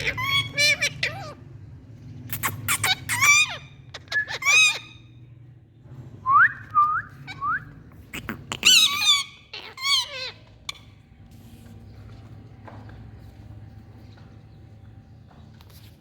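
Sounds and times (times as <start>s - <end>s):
parakeet screechy squawks: 0.0s - 1.4s, 2.3s - 5.1s, 8.0s - 10.9s.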